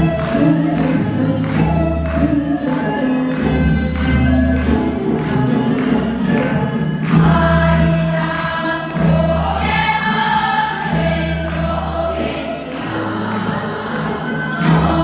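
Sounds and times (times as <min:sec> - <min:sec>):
instrumental accompaniment: 0:00.0 - 0:15.0
group of voices singing: 0:04.9 - 0:15.0.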